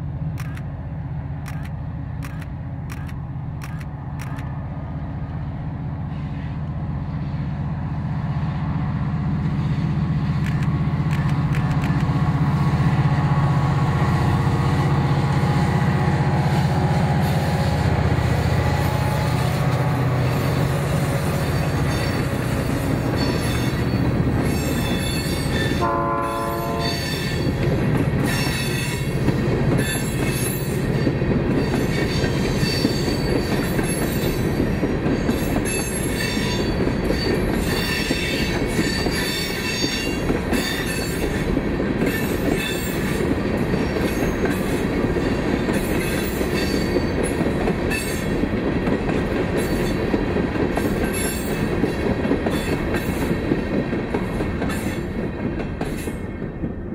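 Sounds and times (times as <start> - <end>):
freight train rolling past: 0.0 - 56.9
train horn: 12.9 - 23.9, 24.6 - 27.6
steel wheels squealing: 20.3 - 25.8, 26.8 - 27.6, 28.2 - 29.2, 29.8 - 41.4, 45.7 - 48.4.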